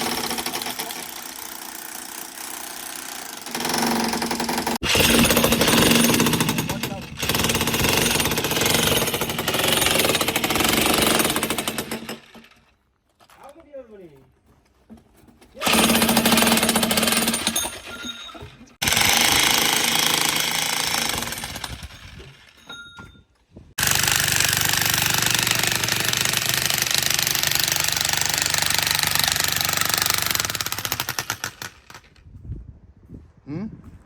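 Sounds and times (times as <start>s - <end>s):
electric chipping hammer: 0.0s - 12.6s, 15.6s - 18.1s, 18.8s - 22.5s, 23.8s - 32.1s.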